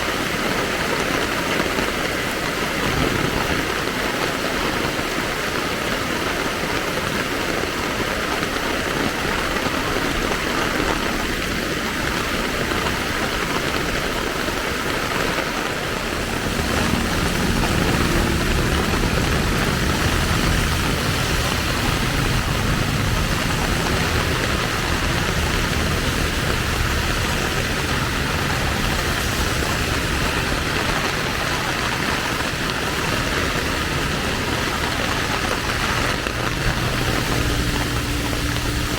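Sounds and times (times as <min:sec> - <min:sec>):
rain hissing: 0:00.0 - 0:38.9
street traffic: 0:00.0 - 0:38.9
vehicle engine humming: 0:15.6 - 0:38.9.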